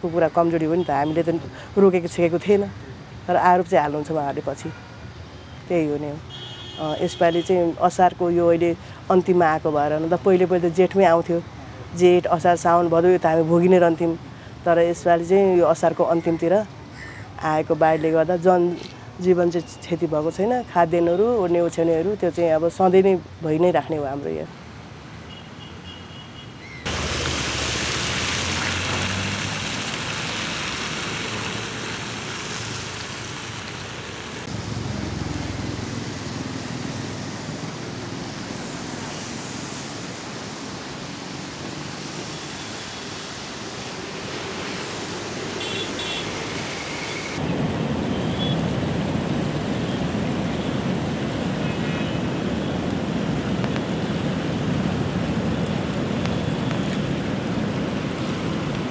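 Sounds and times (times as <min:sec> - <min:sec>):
river rushing: 0:26.9 - 0:58.9.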